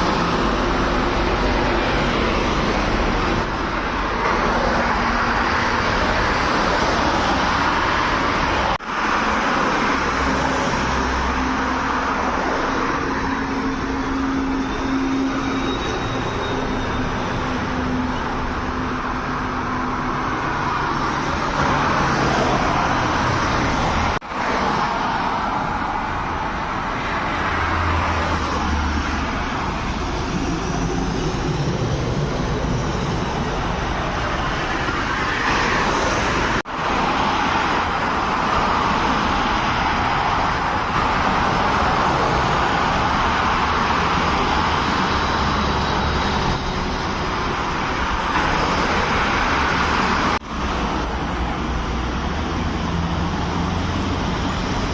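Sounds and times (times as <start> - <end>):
highway traffic roar: 0.0 - 54.9.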